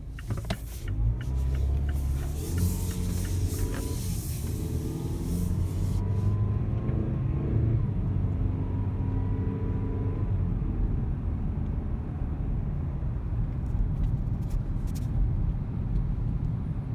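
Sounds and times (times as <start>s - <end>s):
car engine accelerating: 0.0s - 9.3s.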